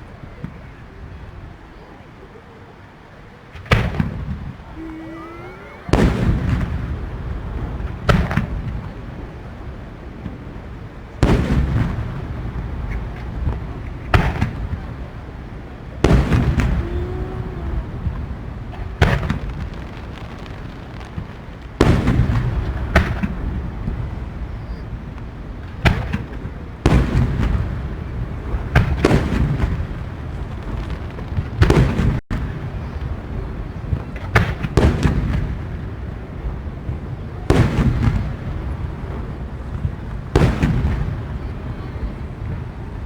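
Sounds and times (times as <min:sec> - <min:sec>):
firework shells booming: 0:03.6 - 0:43.0
low rumbling echoes: 0:04.3 - 0:09.3, 0:14.8 - 0:24.4.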